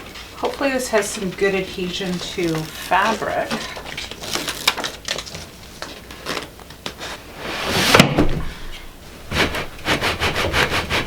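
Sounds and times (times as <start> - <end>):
mattress scraping on metal slats: 7.3 - 8.4.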